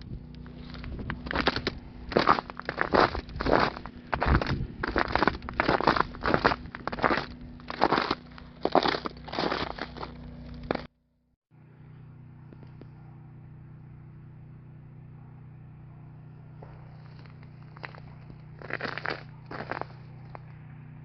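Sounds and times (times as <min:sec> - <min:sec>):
steady low hum: 0:00.0 - 0:21.0
footsteps crunching on ice: 0:00.4 - 0:10.9, 0:16.6 - 0:20.4.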